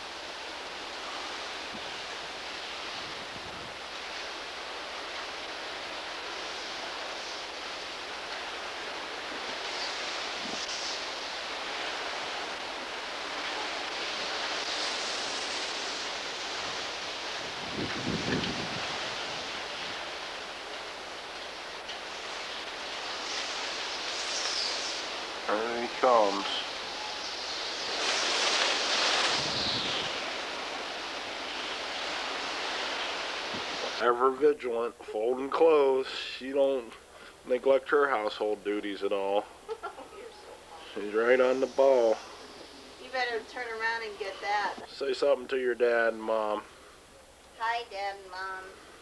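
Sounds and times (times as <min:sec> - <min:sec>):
strong wind rushing: 0:16.4 - 0:20.5, 0:25.1 - 0:34.0.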